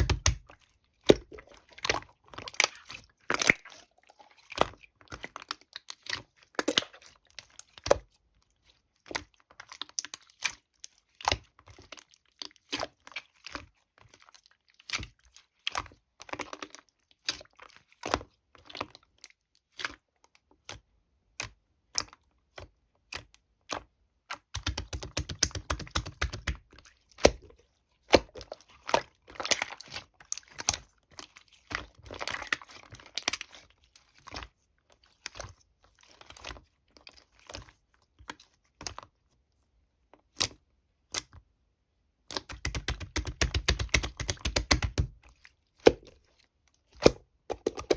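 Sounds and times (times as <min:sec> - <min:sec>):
slime squished by hand: 0:00.0 - 0:08.0, 0:42.3 - 0:47.9.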